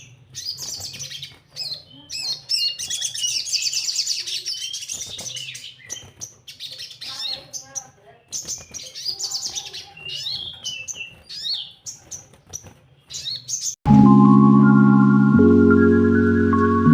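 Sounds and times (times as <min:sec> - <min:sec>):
sunbird chirping and trilling: 0:00.0 - 0:13.8
mallet instrument music: 0:13.9 - 0:16.9.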